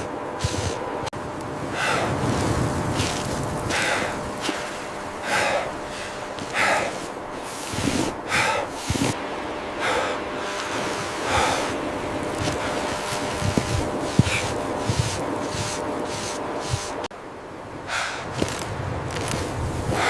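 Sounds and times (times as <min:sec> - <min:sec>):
person breathing heavily: 0:00.0 - 0:01.0, 0:01.6 - 0:17.1, 0:17.8 - 0:18.6, 0:19.3 - 0:20.0.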